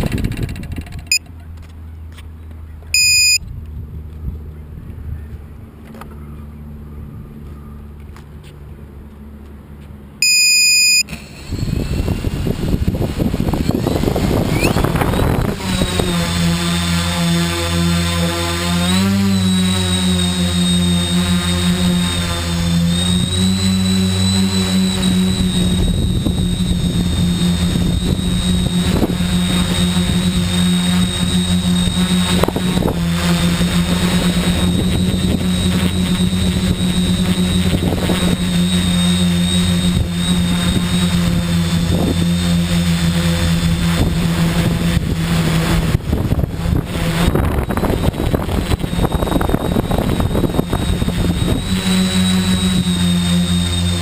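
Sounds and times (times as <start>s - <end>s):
wind noise on microphone: 0.0s - 1.2s, 3.4s - 5.8s, 11.1s - 18.1s, 21.7s - 54.0s
drone motors buzzing: 0.0s - 3.4s, 10.2s - 54.0s
high motor whine: 0.0s - 54.0s.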